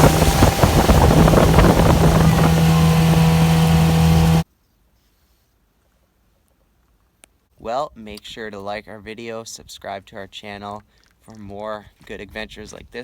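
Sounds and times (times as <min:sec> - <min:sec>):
outboard motor running: 0:00.0 - 0:04.4
wind buffeting microphone: 0:00.0 - 0:04.4.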